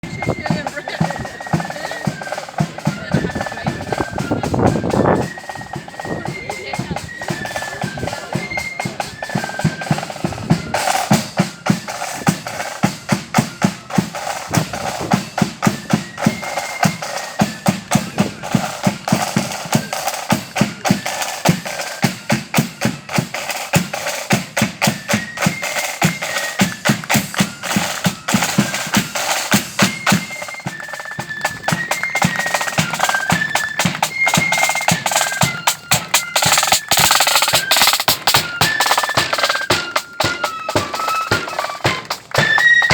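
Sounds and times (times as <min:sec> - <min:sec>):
high flute melody: 0:00.0 - 0:42.9
rapid snare drumming: 0:00.0 - 0:42.9.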